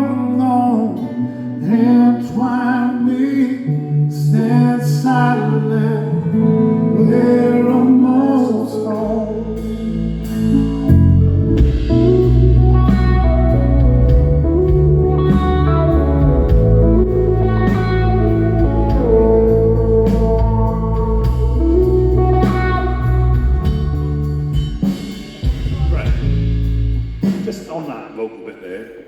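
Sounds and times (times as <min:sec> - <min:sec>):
sustained lead guitar notes: 0:00.0 - 0:27.3
rock band playing: 0:09.1 - 0:27.7.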